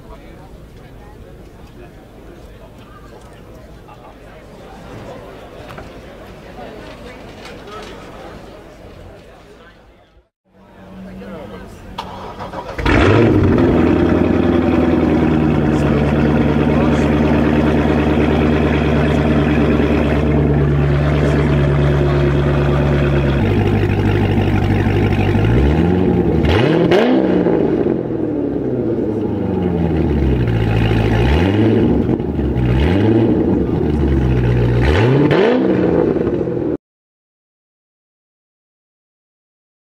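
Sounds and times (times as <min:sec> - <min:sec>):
car engine idling and revving: 0:10.8 - 0:36.8.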